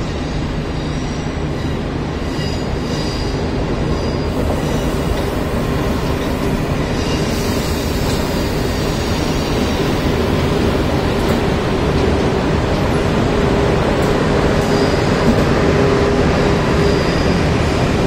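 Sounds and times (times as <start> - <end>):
steel wheels rumbling on rails: 0.0 - 18.0
faint high wheel squeal: 14.6 - 15.4, 16.8 - 17.6.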